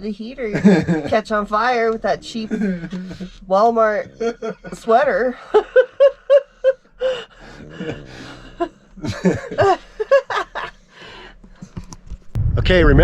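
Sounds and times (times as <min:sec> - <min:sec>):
man laughing softly: 0:02.2 - 0:10.7.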